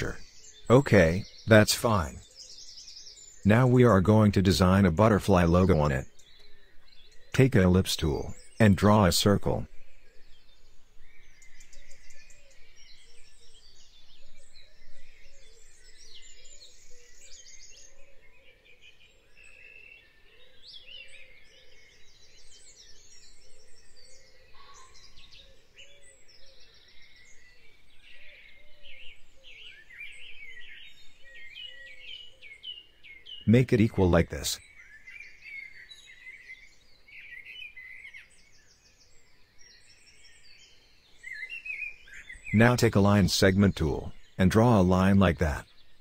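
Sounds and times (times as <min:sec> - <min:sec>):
birds chirping and trilling: 0:00.0 - 0:46.0
soft low bird call: 0:24.3 - 0:26.2.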